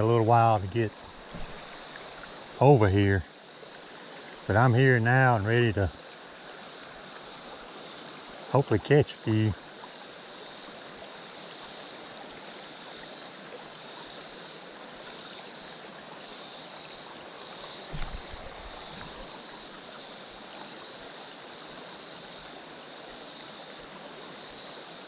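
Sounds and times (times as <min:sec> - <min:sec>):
creek water running over rocks: 0:00.0 - 0:25.0
low thump: 0:01.0 - 0:02.0, 0:17.9 - 0:19.3.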